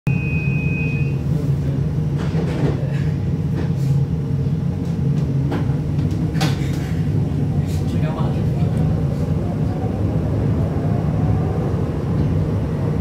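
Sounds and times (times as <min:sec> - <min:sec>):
high steady tone: 0:00.1 - 0:01.2
tram running with low rumble: 0:00.1 - 0:13.0.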